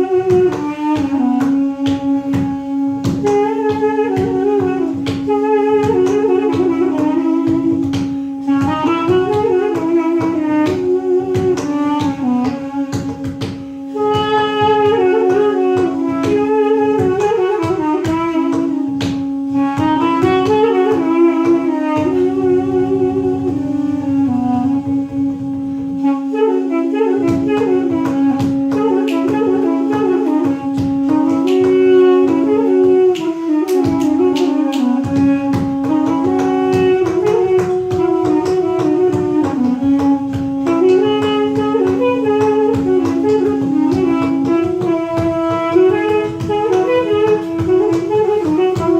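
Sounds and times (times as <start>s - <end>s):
reed instrument drone: 0.0s - 48.9s
reed instrument ornamented melody: 0.0s - 48.9s.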